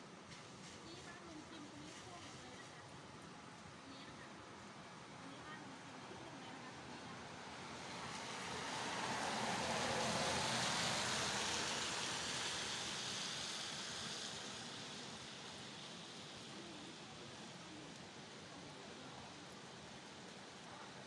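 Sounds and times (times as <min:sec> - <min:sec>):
steady rain hiss: 0:05.8 - 0:21.0.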